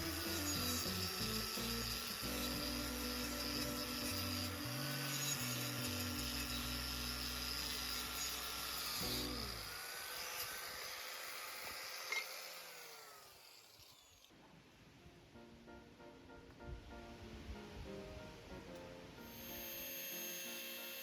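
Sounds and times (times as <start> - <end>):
power tool motor whining: 0.0 - 14.3, 19.2 - 21.0.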